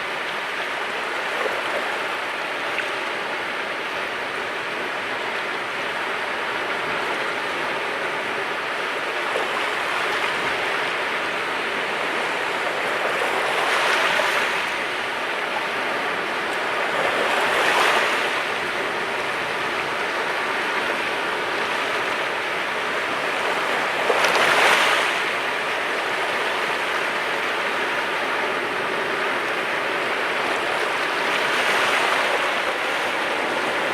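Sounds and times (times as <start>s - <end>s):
waves breaking on rocky shore: 8.4s - 33.9s.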